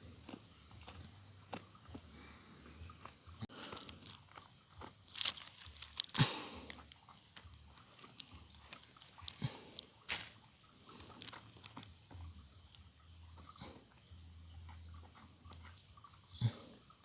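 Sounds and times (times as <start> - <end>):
digging scraping: 0.0 - 12.4
gravel and stones crunching: 0.0 - 13.9.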